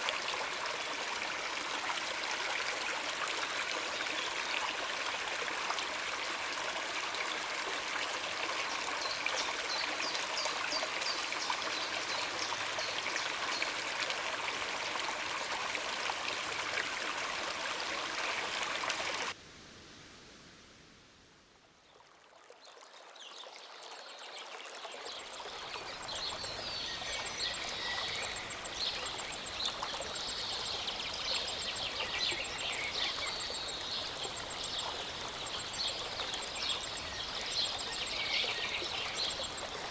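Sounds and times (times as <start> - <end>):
mountain stream running: 0.0 - 19.4, 21.7 - 39.9
birds chirping: 25.8 - 39.9.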